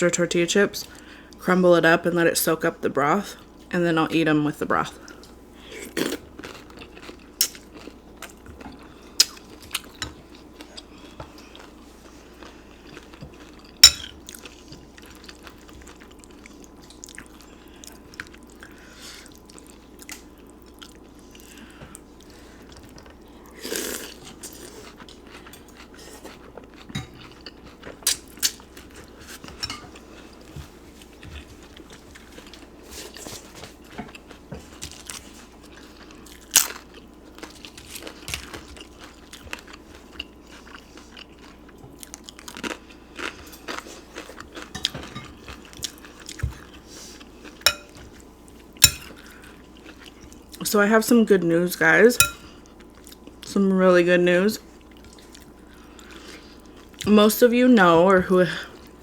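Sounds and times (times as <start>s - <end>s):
chewing and crunching: 5.0s - 50.6s, 52.2s - 53.5s, 54.6s - 57.1s
spoon clicking against bowl: 47.7s - 47.9s, 48.8s - 49.1s.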